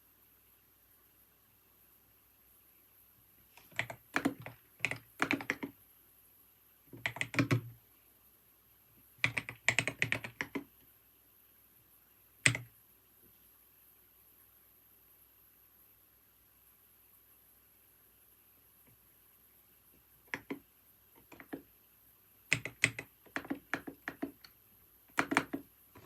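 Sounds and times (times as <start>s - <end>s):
typing on a keyboard: 3.6s - 5.8s, 6.9s - 7.8s, 9.2s - 10.7s, 12.4s - 12.7s, 20.2s - 21.7s, 22.5s - 26.0s.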